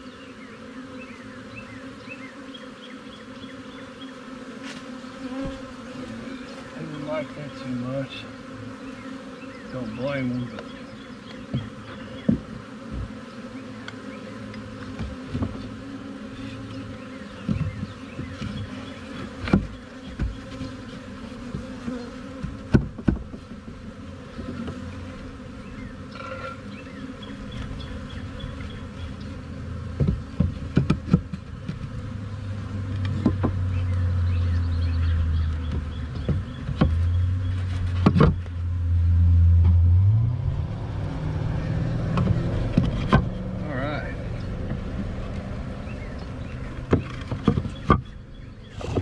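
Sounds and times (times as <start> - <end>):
honeybees buzzing: 0.0 - 49.0
low rumble: 38.7 - 46.9.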